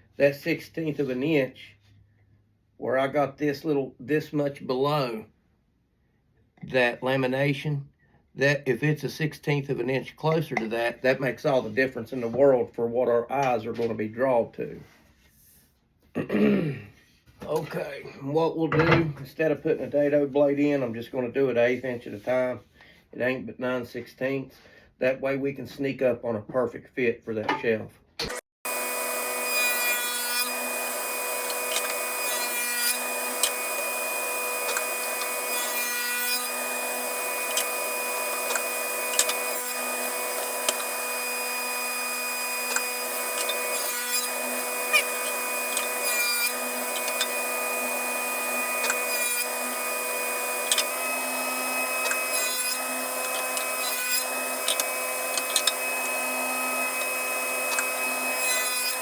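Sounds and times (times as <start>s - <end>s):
saw blade cutting wood: 28.7s - 59.0s
table saw running: 28.7s - 59.0s.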